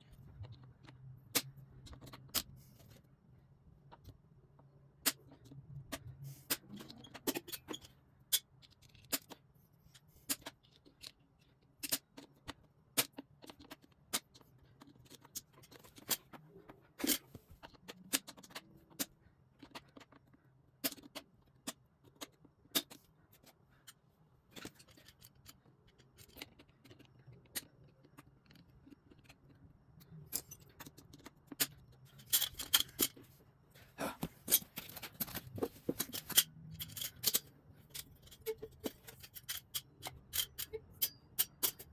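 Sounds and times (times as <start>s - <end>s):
metal tools clicking and scraping: 6.0s - 33.4s, 34.3s - 41.9s
metal parts jingling: 31.7s - 33.2s, 34.4s - 41.9s.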